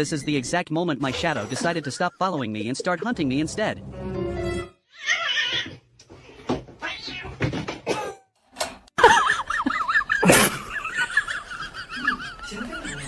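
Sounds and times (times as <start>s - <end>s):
cat yowling: 4.9s - 5.7s.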